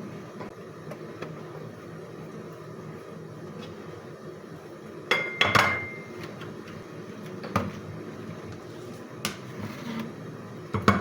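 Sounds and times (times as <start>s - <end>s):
dish clinking: 5.1s - 6.1s.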